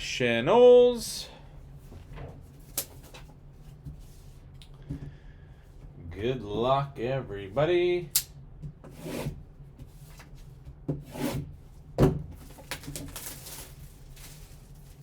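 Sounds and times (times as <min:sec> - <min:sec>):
packaging rubbing and swishing: 0:12.5 - 0:15.0.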